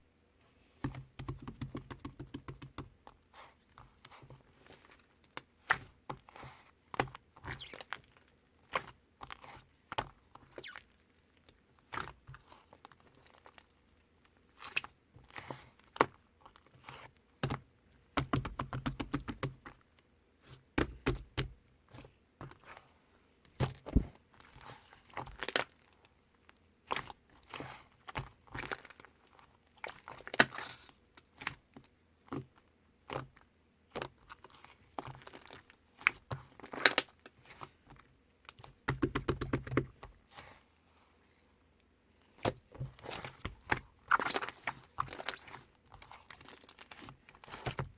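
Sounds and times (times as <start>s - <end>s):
slime squelching: 0.8s - 40.6s, 42.2s - 47.9s.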